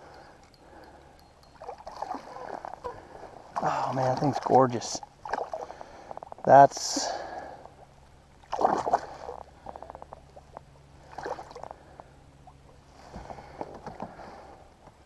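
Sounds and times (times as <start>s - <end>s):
water splashing beside a kayak: 1.6s - 11.8s.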